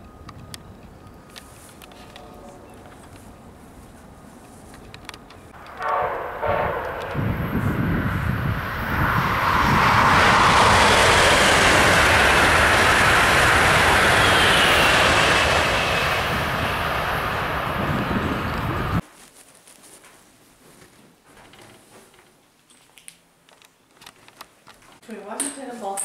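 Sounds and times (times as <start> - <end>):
train horn blast: 1.8 - 2.9, 5.6 - 7.9
train rushing past: 5.0 - 19.0.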